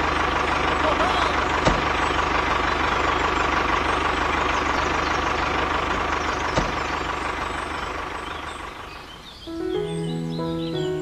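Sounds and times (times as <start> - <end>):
small tractor engine running: 0.0 - 11.0.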